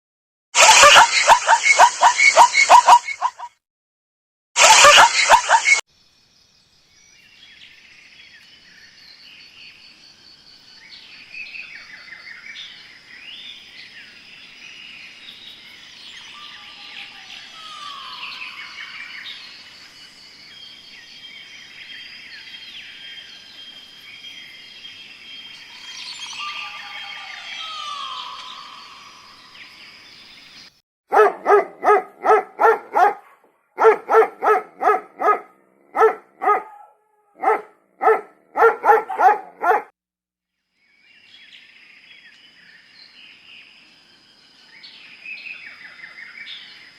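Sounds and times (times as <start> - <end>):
birds chirping and whistling: 0.6 - 3.5, 4.6 - 5.8, 15.4 - 19.7, 25.4 - 29.9
dog barking rapidly: 0.6 - 3.5, 4.6 - 5.8, 31.1 - 39.9.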